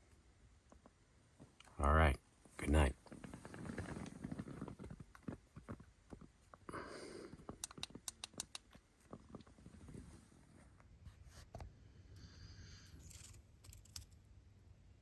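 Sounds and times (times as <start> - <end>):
faint rustling: 2.4 - 7.6, 8.7 - 11.7
small clicks: 7.4 - 9.5
sharp ticks: 7.6 - 8.7.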